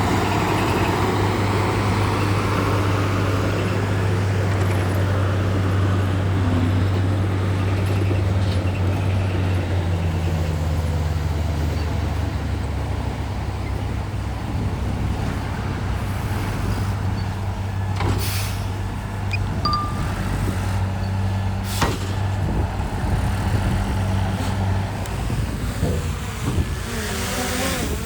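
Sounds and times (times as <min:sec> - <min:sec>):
diesel engine humming: 0:00.0 - 0:28.0.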